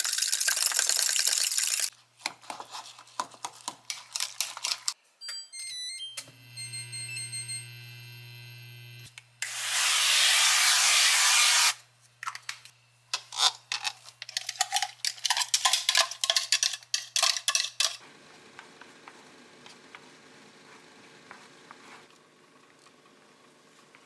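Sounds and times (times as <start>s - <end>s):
loud steady hiss: 9.4s - 11.8s
utensils and dishes clinking: 13.2s - 18.0s.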